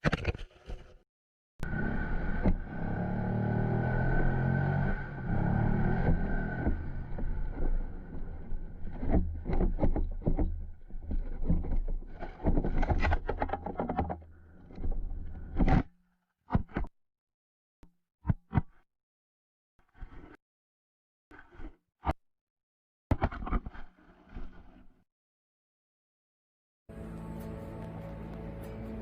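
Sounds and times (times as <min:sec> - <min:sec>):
sharp knocks and scrapes: 0:06.0 - 0:15.9, 0:19.9 - 0:20.4, 0:23.1 - 0:24.9.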